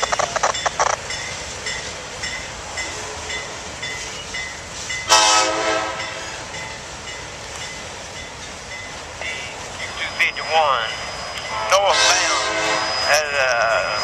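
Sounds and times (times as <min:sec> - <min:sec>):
freight train rumbling past: 0:00.0 - 0:14.0
locomotive air horn blast: 0:05.1 - 0:06.4, 0:11.5 - 0:13.1.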